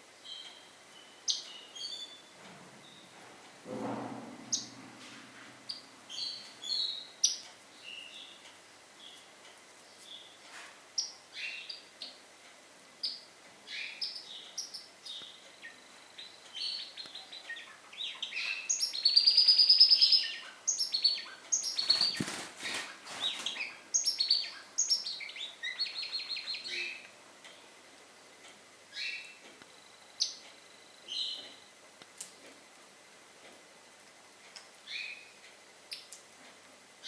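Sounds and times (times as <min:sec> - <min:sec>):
birds chirping and twittering: 0:00.2 - 0:12.3, 0:13.0 - 0:27.8, 0:28.8 - 0:31.8, 0:34.8 - 0:36.2
wings flapping: 0:21.8 - 0:23.6.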